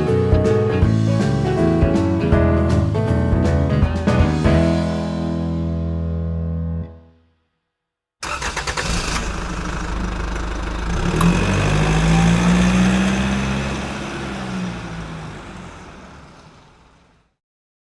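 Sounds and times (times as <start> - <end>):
engine turning over and running: 8.2 - 17.3.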